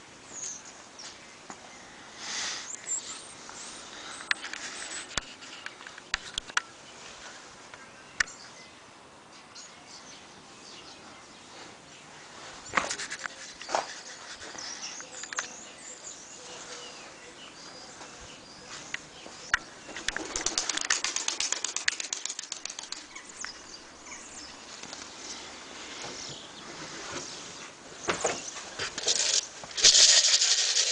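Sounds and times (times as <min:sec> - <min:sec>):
pigeon wings flapping: 0:20.0 - 0:23.2.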